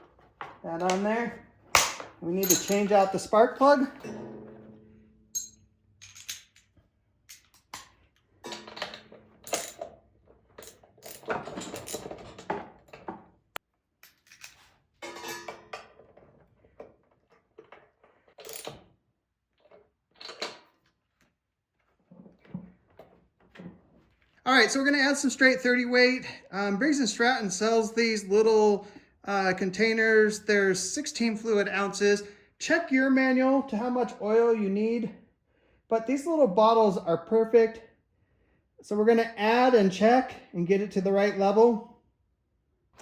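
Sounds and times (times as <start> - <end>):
metallic clinks of hand tools: 1.8 - 3.3, 5.4 - 6.7.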